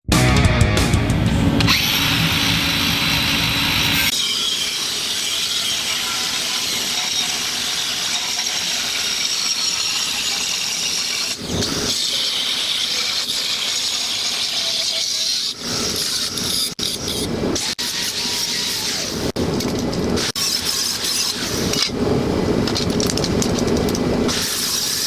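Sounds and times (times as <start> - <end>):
angle grinder grinding steel: 1.2 - 19.3.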